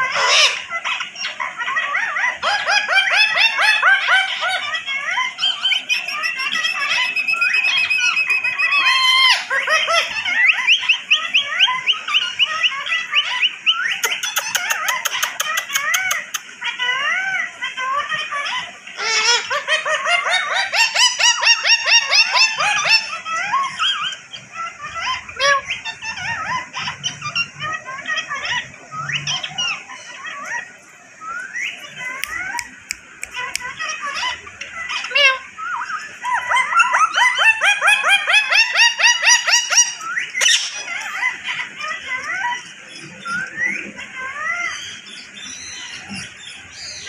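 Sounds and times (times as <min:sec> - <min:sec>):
parrot chattering and squawking: 0:00.0 - 0:47.0.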